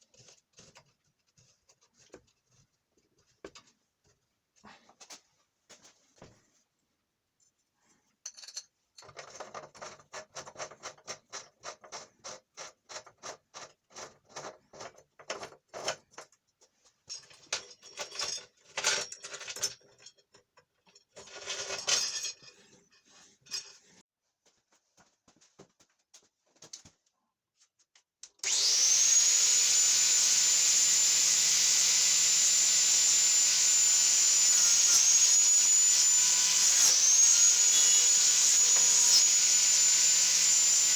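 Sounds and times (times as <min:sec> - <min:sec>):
angle grinder whining: 0:28.4 - 0:40.9.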